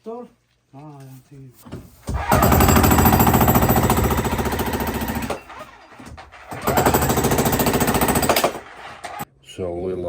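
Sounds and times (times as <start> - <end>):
jackhammer breaking concrete: 2.1 - 9.2.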